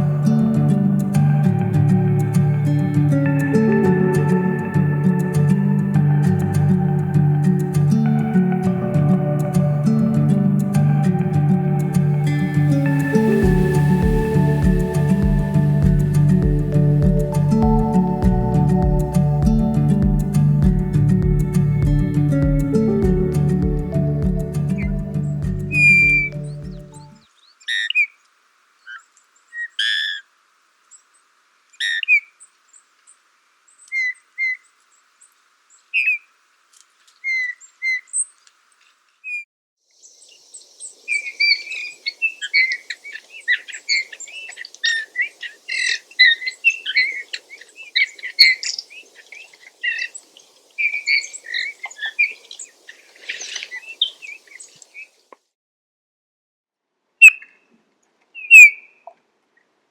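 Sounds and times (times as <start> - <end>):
bullfinch piping and singing: 10.8 - 27.1.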